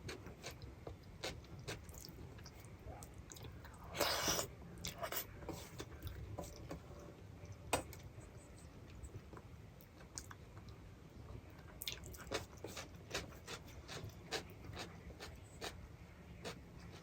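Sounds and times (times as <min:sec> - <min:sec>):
person chewing food: 0:00.0 - 0:06.6, 0:11.8 - 0:15.8.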